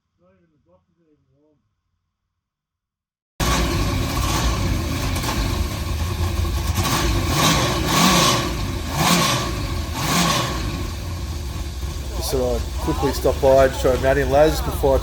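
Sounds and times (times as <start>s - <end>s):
car engine revving: 3.4s - 15.0s.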